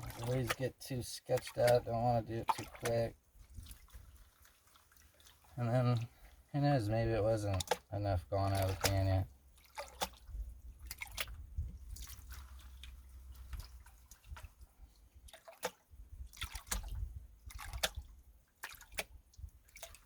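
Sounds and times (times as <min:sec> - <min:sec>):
gravel being washed: 0:00.0 - 0:09.3, 0:11.8 - 0:14.3
water sloshing and dripping: 0:00.0 - 0:20.0.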